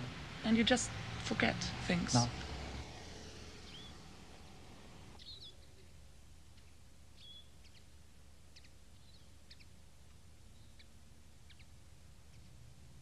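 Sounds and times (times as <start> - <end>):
low steady hum: 0.0 - 13.0
faint small bird chirps: 3.6 - 4.0, 5.2 - 5.9, 6.5 - 7.9, 8.5 - 9.8, 10.5 - 12.6.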